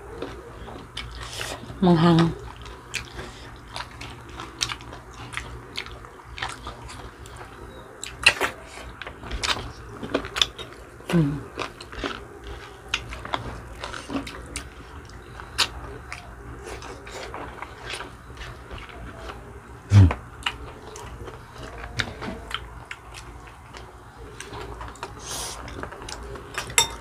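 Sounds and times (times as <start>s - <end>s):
wet chewing: 0.2s - 26.8s
brief vocal sound: 19.9s - 20.2s.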